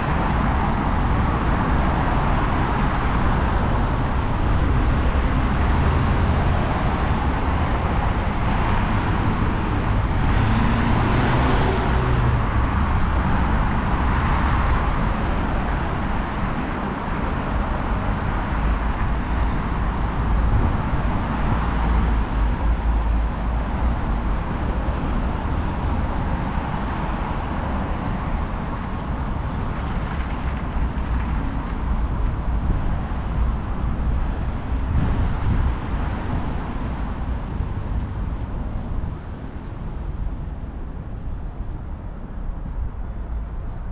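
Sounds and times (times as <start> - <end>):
vehicle passing by: 0.0 - 29.2
traffic rumble: 0.0 - 43.9.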